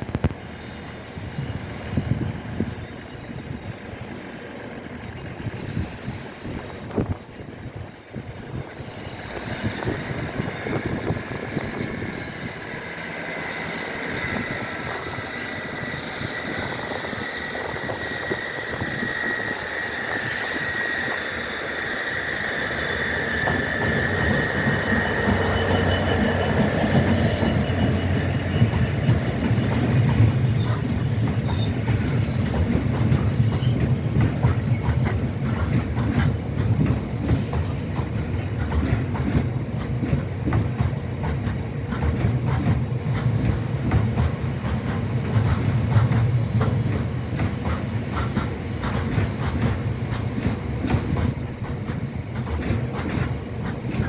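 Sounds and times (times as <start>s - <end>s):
train wheels squealing: 0.4s - 4.5s, 5.1s - 54.0s
rumble and clatter of wagons: 23.3s - 54.0s.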